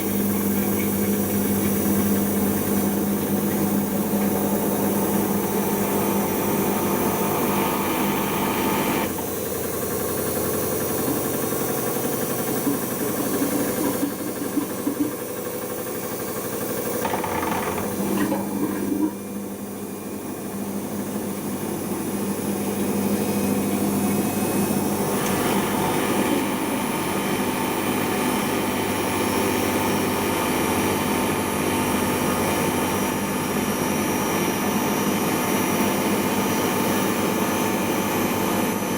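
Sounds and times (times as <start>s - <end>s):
washing machine spinning: 0.0s - 38.9s.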